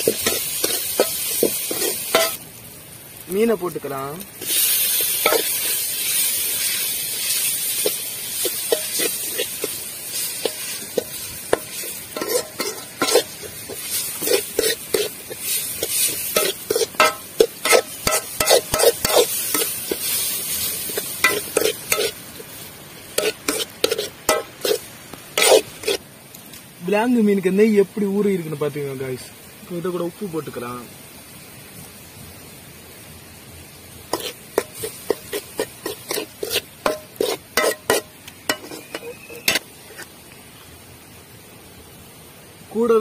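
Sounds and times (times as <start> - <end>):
food frying in oil: 0.0 - 43.0
metal spoon clinking against pot: 0.1 - 2.4, 37.6 - 39.6.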